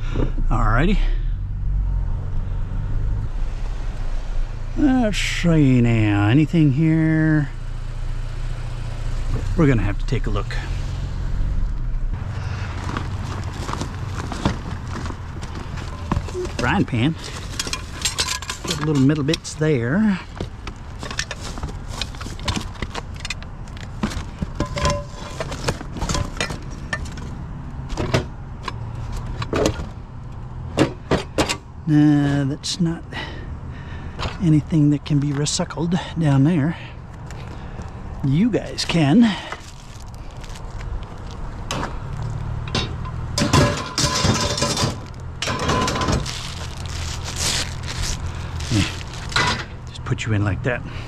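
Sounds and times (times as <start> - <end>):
low engine hum: 0.0 - 51.0
rustling: 12.2 - 27.4, 37.2 - 50.0
scrap metal knocks and clatter: 12.8 - 19.5, 20.3 - 30.0, 42.6 - 46.6, 49.1 - 49.8
metal pieces clanking and rattling: 15.8 - 19.5, 21.0 - 27.3, 42.7 - 46.4, 49.3 - 49.8.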